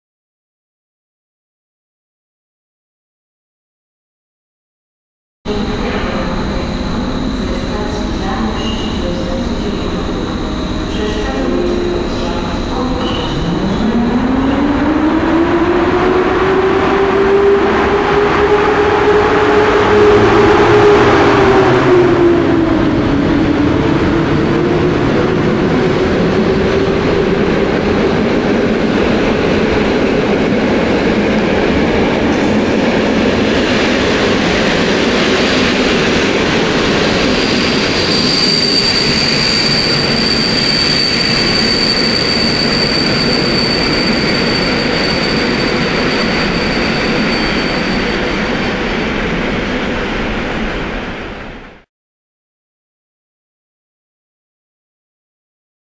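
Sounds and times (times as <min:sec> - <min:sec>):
train coaches rumbling on rails: 0:05.5 - 0:51.8
high wheel squeal: 0:12.0 - 0:14.0, 0:36.7 - 0:49.0.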